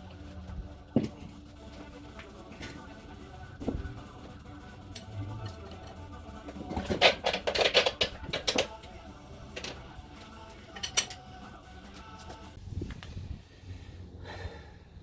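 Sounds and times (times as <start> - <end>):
metal clanking and rattling: 0.0 - 11.5.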